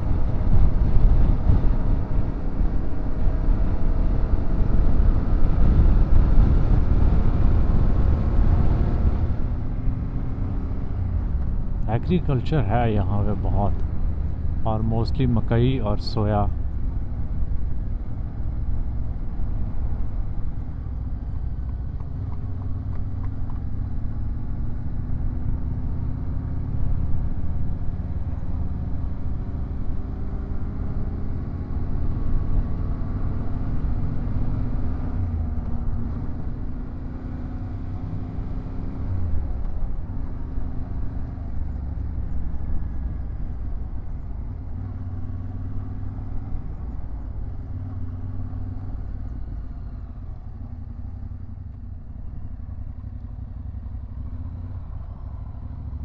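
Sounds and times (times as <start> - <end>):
wind and road noise: 0.0 - 56.0.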